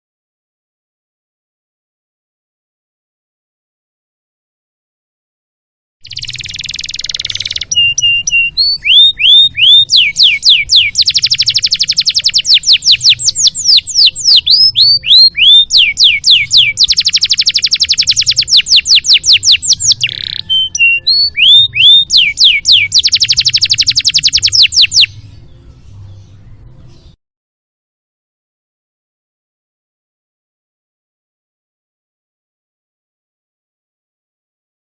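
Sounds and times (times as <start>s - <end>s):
canary singing trills: 6.0s - 27.2s.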